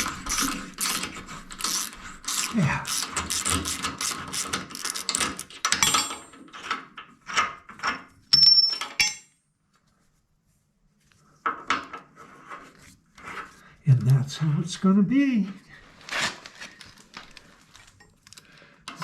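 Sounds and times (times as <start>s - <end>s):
ratchet wrench clicking: 0.0s - 5.5s.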